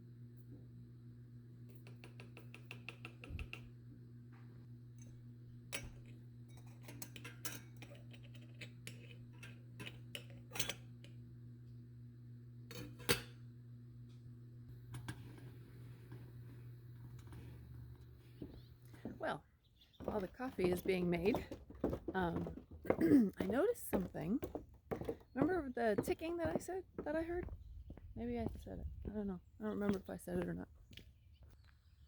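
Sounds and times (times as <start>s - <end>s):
dishes and cutlery clinking: 5.8s - 10.9s.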